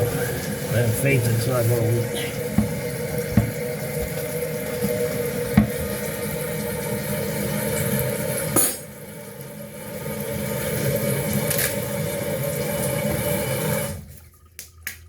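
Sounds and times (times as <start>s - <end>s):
toilet tank fill valve hissing: 0.0s - 14.5s.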